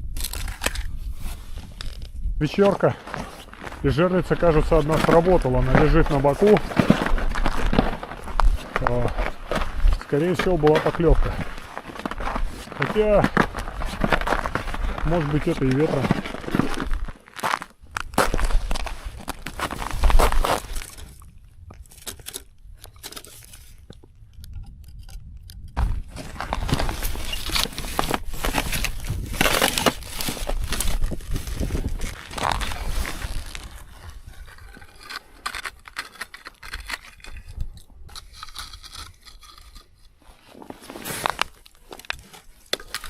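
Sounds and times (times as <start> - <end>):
ice scraping and crackling: 0.0 - 43.0
footsteps crunching through snow: 1.0 - 21.2, 25.8 - 35.4, 40.2 - 43.0.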